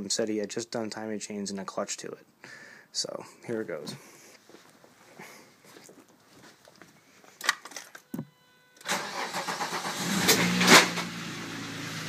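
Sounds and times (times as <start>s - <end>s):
car engine starting and idling: 8.8s - 12.0s.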